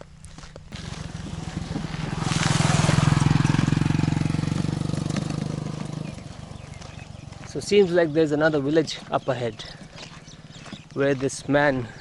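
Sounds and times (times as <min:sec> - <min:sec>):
motorcycle passing by: 0:00.7 - 0:09.0.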